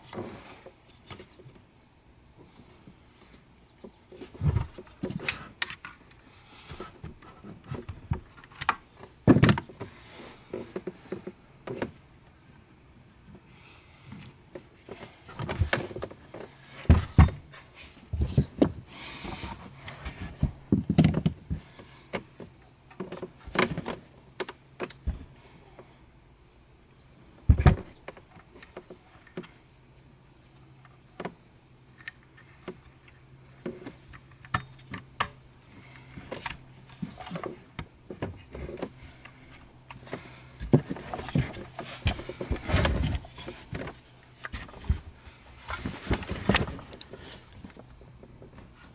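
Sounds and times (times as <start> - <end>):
hand tools clicking and clunking: 33.5 - 48.9.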